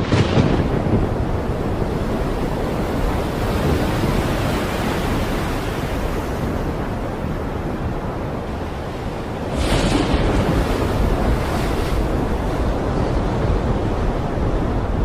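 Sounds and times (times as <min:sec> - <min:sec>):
rough surf: 0:00.0 - 0:15.0
wind rushing: 0:00.0 - 0:15.0.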